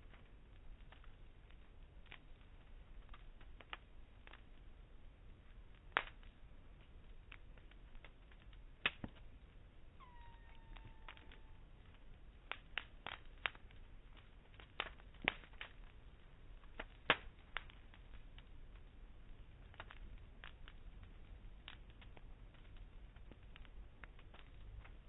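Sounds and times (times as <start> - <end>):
campfire crackling and popping: 0.0 - 25.0
falling whistle: 10.0 - 11.6.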